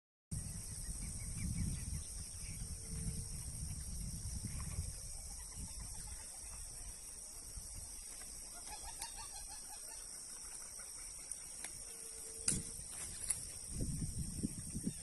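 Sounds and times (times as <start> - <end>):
low rumble on microphone: 0.4 - 6.2.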